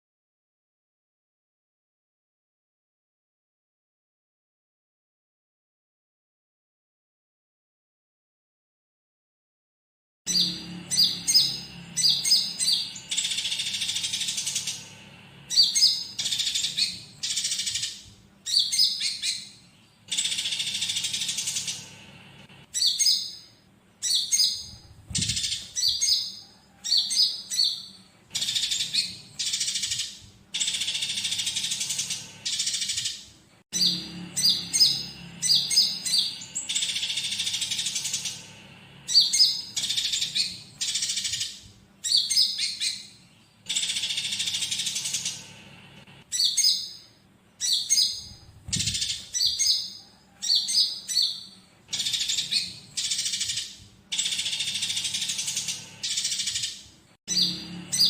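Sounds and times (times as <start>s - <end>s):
bird sharp high chirps: 10.3s - 22.0s, 22.7s - 45.6s, 46.2s - 58.0s
sparrow raspy buzzing chatter: 10.3s - 58.0s.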